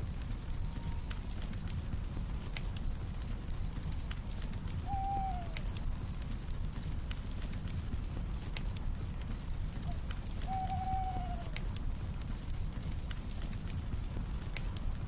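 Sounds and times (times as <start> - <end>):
campfire crackling: 0.0 - 15.0
crickets chirring: 0.0 - 15.0
owl hoot: 4.8 - 5.6, 9.9 - 11.6.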